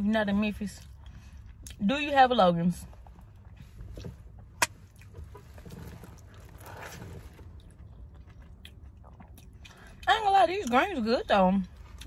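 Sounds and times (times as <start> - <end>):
person chewing food: 0.8 - 1.8, 3.0 - 10.1.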